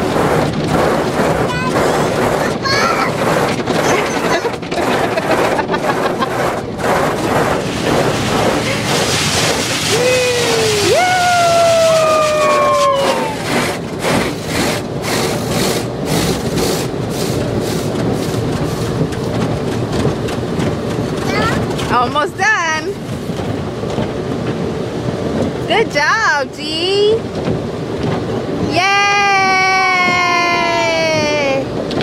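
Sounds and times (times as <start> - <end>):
brushes beating on car body: 0.0 - 10.1, 13.1 - 22.2
water spray rushing: 0.0 - 32.0.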